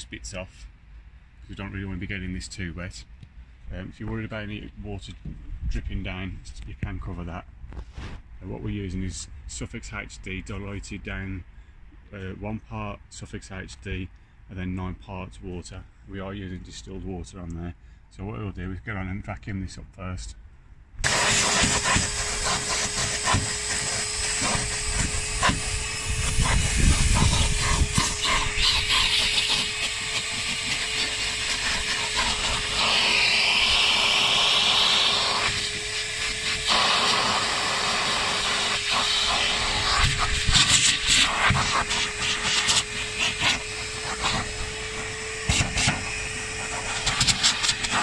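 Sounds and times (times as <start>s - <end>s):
vacuum cleaner whine: 21.0s - 48.0s.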